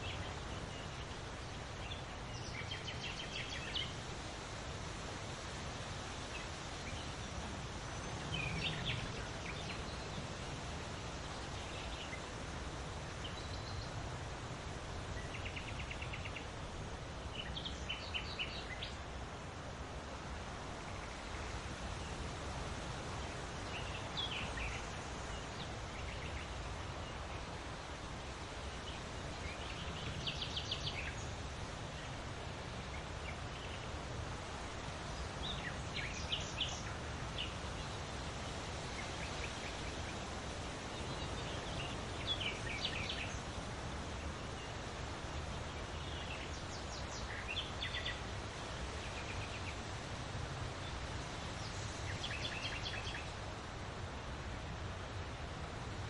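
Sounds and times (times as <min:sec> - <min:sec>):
small birds chirping: 0:00.0 - 0:19.4, 0:20.2 - 0:53.6
wind with low rumble: 0:00.0 - 0:56.0.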